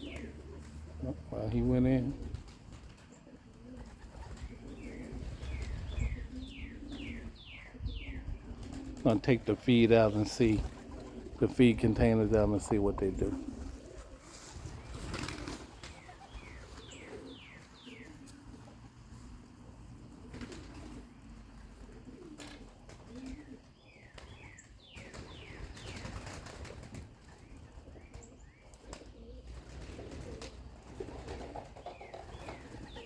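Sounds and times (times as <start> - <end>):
pigeons cooing: 0.0 - 33.0
wings flapping: 2.0 - 7.2, 8.5 - 9.0, 9.7 - 17.3, 20.0 - 21.1, 21.8 - 33.0.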